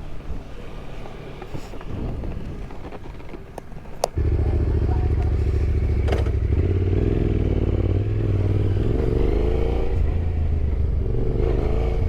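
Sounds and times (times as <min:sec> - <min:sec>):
motorcycle engine revving: 0:04.2 - 0:12.0.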